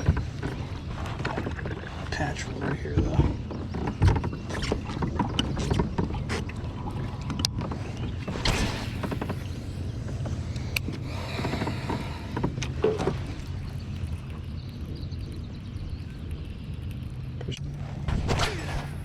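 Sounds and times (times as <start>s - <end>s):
clicks and knocks against hull: 0.0s - 15.2s
low rumble: 6.2s - 19.0s.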